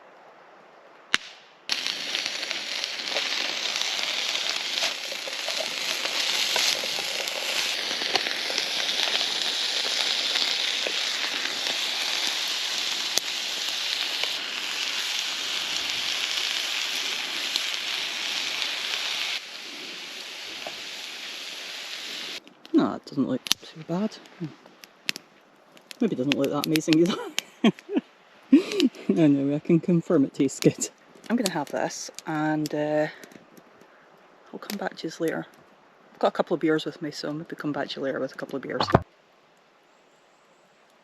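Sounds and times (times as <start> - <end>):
pops and crackles: 1.1 - 29.1, 30.5 - 34.0, 38.4 - 39.0
meat sizzling in a pan: 1.7 - 22.4.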